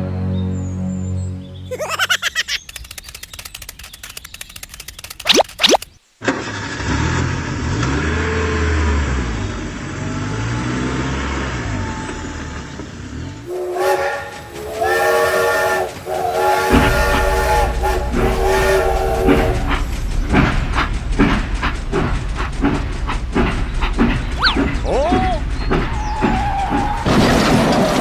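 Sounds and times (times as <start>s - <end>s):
multi-tone train horn blasts: 13.5s - 19.9s.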